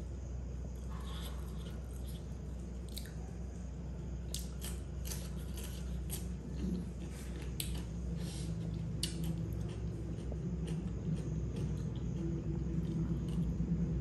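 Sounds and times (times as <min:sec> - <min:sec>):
low hum: 0:00.0 - 0:14.0
cucumber crunching: 0:04.3 - 0:08.0.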